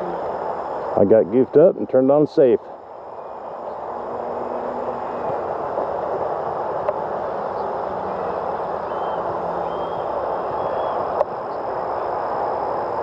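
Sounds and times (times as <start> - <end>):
faint thin motor tones: 2.3 - 12.1
model airplane propeller rushing: 3.1 - 12.8.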